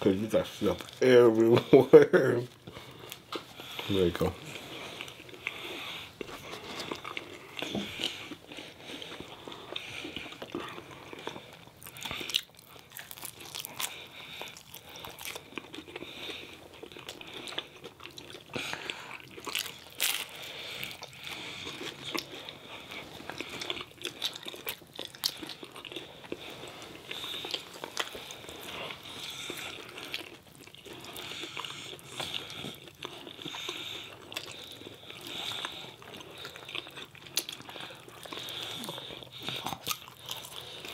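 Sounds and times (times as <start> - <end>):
food being bitten and chewed: 2.5 - 40.9.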